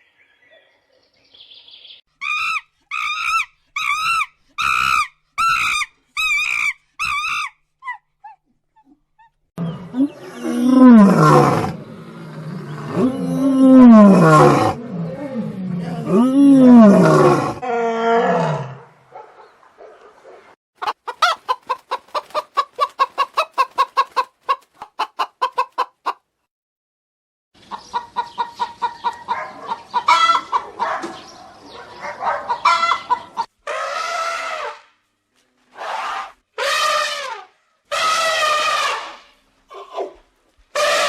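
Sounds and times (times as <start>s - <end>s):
lion roaring: 9.6s - 18.9s
chickens clucking: 20.8s - 26.3s, 27.6s - 33.8s.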